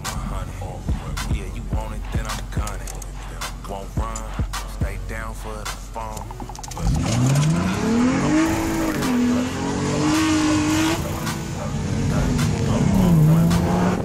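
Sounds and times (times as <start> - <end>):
car engine revving hard: 6.8 - 14.0
tires squealing: 6.8 - 14.0.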